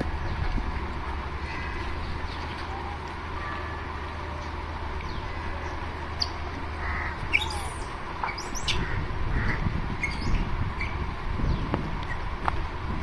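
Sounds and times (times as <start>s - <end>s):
low outdoor rumble: 0.0s - 13.0s
high animal chirps and squeaks: 7.2s - 8.9s, 10.0s - 11.0s.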